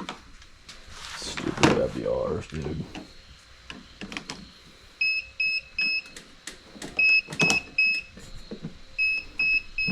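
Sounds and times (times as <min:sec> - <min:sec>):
electronic triple beeps: 0:09.0 - 0:09.9.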